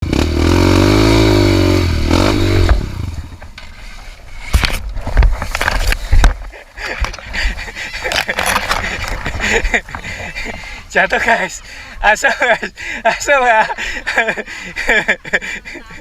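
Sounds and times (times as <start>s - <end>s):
motorcycle engine revving: 0.0s - 3.9s.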